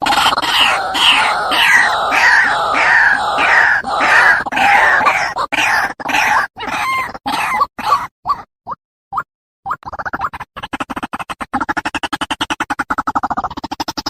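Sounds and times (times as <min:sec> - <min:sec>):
bird harsh croaking calls: 0:00.0 - 0:08.1.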